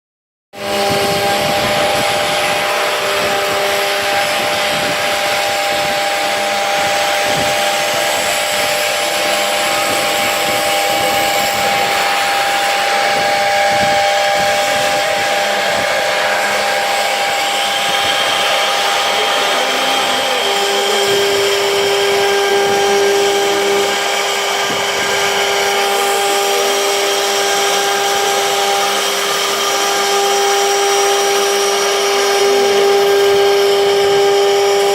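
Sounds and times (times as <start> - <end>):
cnc router motor whine: 0.6 - 34.9
low tone: 0.6 - 34.9
loud hiss: 0.7 - 34.9.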